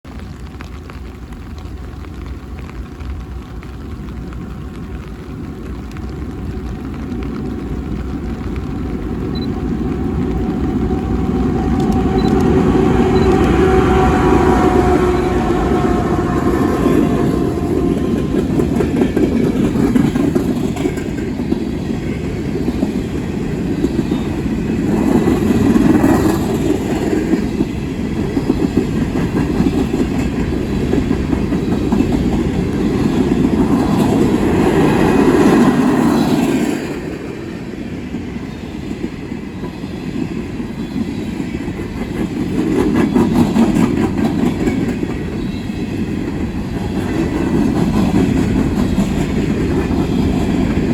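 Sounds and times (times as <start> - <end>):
heavy train rumble: 0.1 - 50.9
train wheels clattering on rails: 5.9 - 50.9
fading tone: 9.2 - 18.9.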